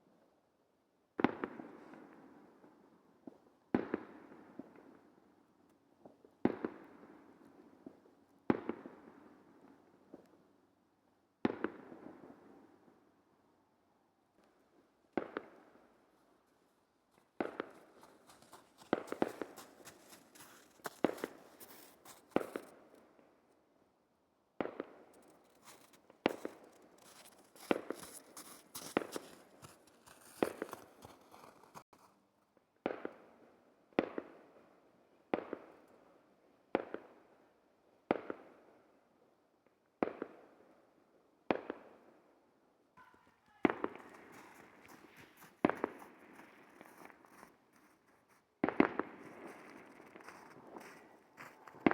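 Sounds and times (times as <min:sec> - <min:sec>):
high fireworks crackling: 0:43.5 - 0:47.4.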